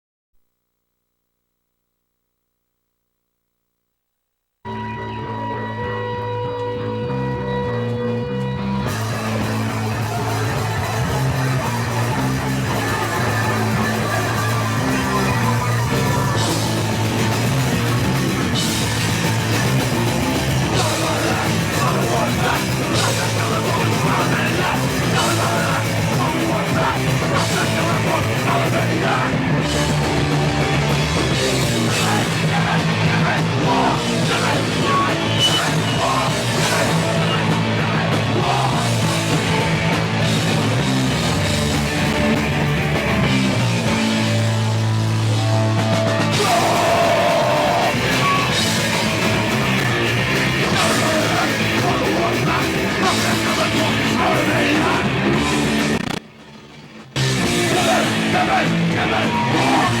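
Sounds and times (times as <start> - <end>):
distorted electric guitar: 4.7 - 60.0
drum kit: 5.8 - 56.2, 57.1 - 60.0
person yelling vocals: 46.3 - 48.5.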